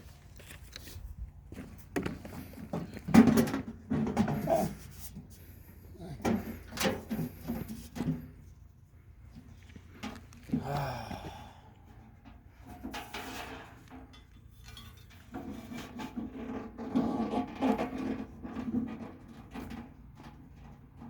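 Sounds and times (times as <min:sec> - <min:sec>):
rubbing and scraping: 0:01.8 - 0:08.7, 0:15.2 - 0:20.2.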